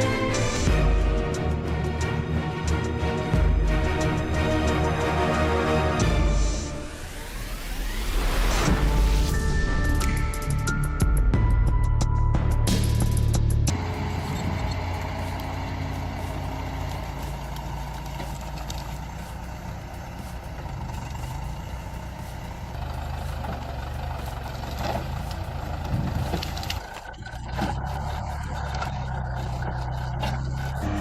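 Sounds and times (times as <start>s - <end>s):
music track: 0.0s - 16.5s
heavy machinery engine droning: 0.0s - 31.0s.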